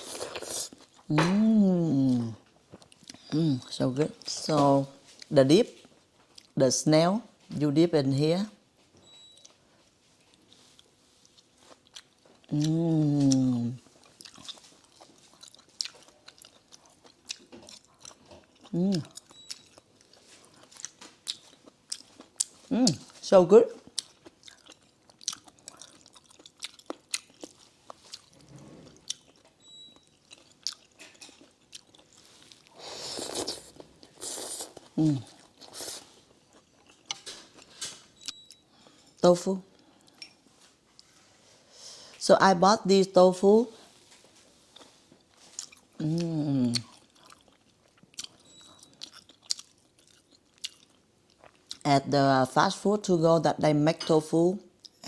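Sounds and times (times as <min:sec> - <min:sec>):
person chewing noodle soup: 0:00.0 - 0:01.1, 0:02.6 - 0:03.4, 0:10.2 - 0:23.2, 0:23.8 - 0:39.0, 0:44.7 - 0:51.8
mouth clicks and crunches: 0:45.5 - 0:51.9.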